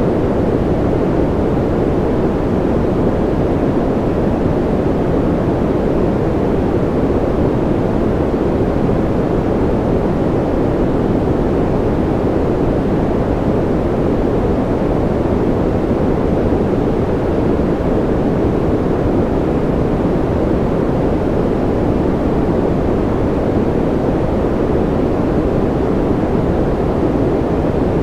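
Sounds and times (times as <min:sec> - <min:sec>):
white noise rush: 0:00.0 - 0:28.0.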